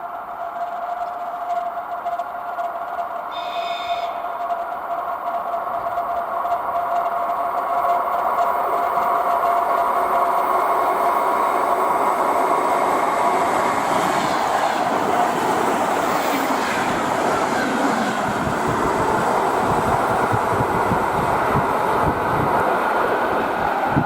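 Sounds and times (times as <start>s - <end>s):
train wheels rushing on rail: 0.0s - 24.0s.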